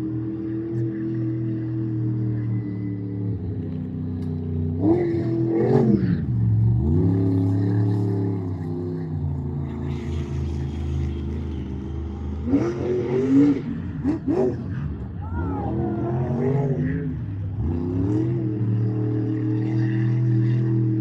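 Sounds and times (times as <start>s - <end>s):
truck engine revving hard: 15.7s - 21.0s.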